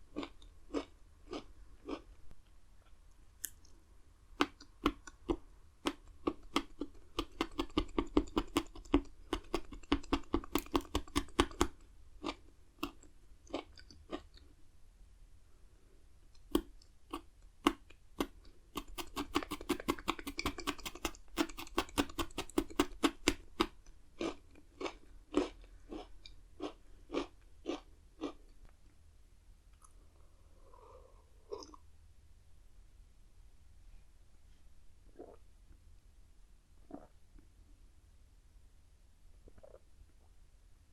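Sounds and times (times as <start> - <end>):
crunchy biscuit sticks being chewed: 0.0 - 3.8, 4.4 - 14.6, 16.3 - 28.9.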